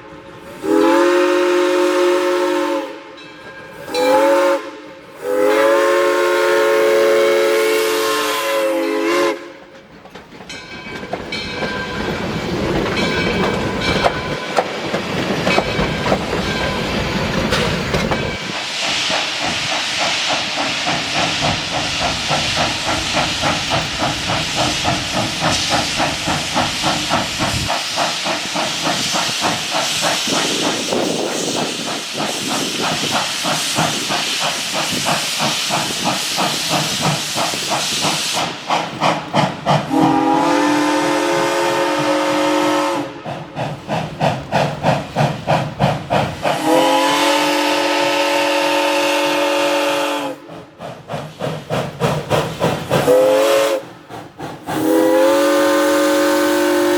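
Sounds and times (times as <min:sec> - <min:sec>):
multi-tone steam whistle: 0:00.0 - 0:09.7, 0:39.9 - 0:43.3, 0:46.4 - 0:50.6, 0:53.0 - 0:53.9, 0:54.7 - 0:56.9
steam locomotive exhaust beat: 0:00.0 - 0:56.9.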